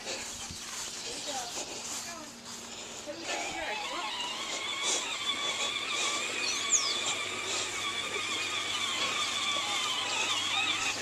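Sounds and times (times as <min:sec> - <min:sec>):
electric motor whining: 0:02.8 - 0:11.0.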